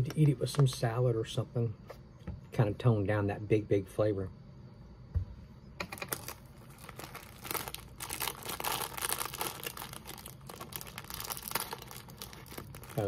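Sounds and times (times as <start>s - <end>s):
plastic crinkling and tearing: 5.9s - 13.0s.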